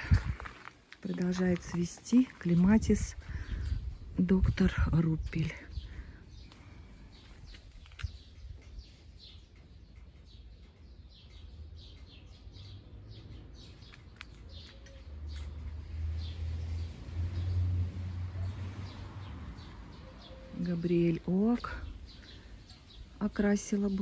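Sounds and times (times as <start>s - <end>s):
low rumble: 0.0s - 8.8s
garden birds chirping: 0.0s - 24.0s.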